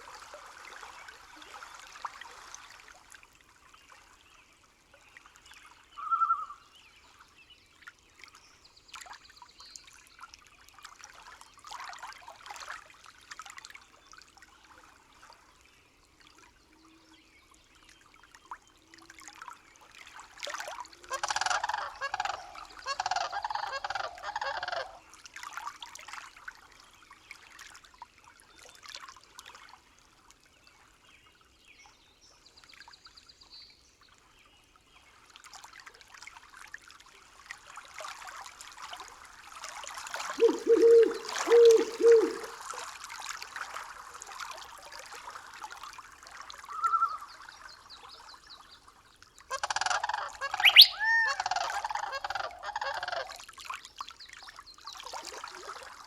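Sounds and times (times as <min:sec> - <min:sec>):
birds calling: 0:40.4 - 0:42.6, 0:49.6 - 0:53.2.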